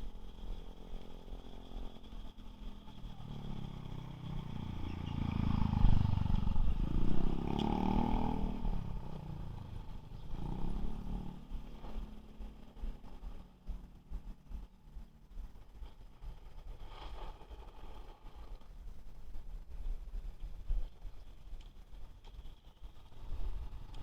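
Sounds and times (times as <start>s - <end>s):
vehicle motor revving: 3.2s - 13.4s.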